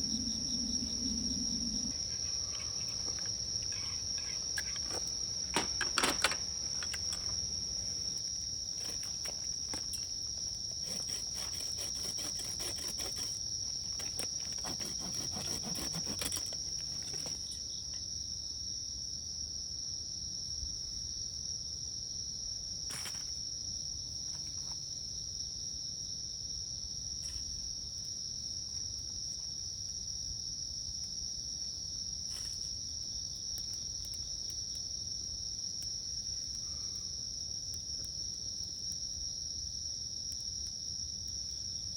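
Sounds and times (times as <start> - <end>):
insects chorus: 0.0 - 41.9
light clicks and crackles: 2.0 - 18.0.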